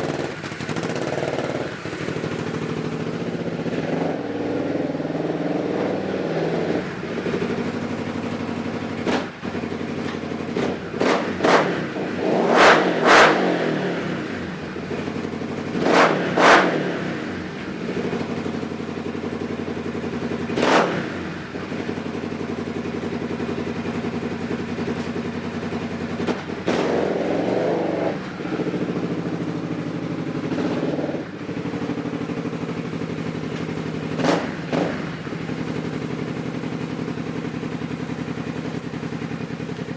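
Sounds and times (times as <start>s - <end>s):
engine idling: 0.0s - 39.9s
quick throttle revs: 10.6s - 14.6s, 15.8s - 17.5s, 20.5s - 21.5s, 26.2s - 31.4s, 33.6s - 35.5s.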